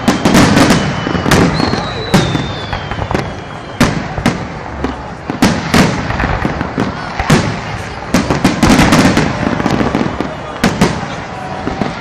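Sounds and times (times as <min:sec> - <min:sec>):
high firework whistle: 0:00.0 - 0:06.0
fireworks bangs: 0:00.0 - 0:12.0.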